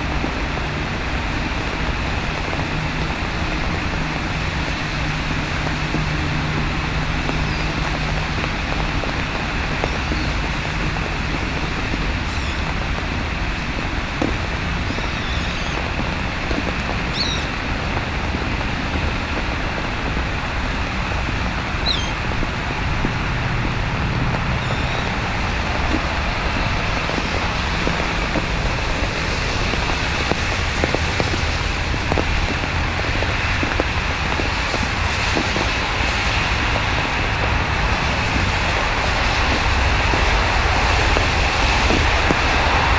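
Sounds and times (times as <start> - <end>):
low rumble of city traffic: 0.0 - 42.9
rain and sleet hissing: 0.0 - 42.9.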